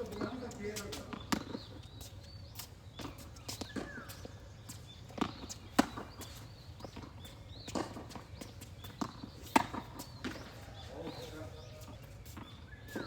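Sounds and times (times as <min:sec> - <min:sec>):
tennis ball bouncing on court: 0:01.1 - 0:01.8, 0:05.1 - 0:10.6
tennis ball hitting racquets: 0:05.2 - 0:07.1, 0:07.7 - 0:10.6.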